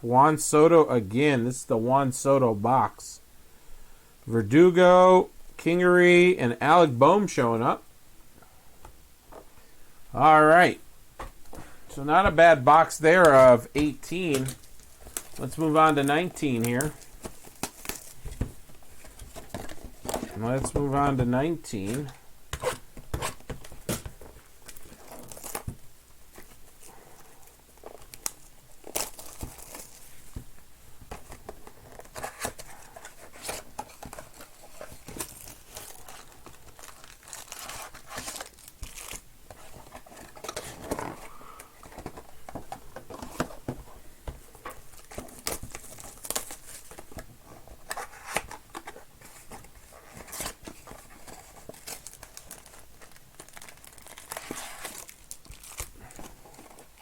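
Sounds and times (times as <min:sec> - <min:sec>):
plastic wrapping tearing and crumpling: 0:14.4 - 0:18.4, 0:24.6 - 0:25.8, 0:27.8 - 0:30.3, 0:31.8 - 0:41.2, 0:44.9 - 0:47.1, 0:49.9 - 0:57.0.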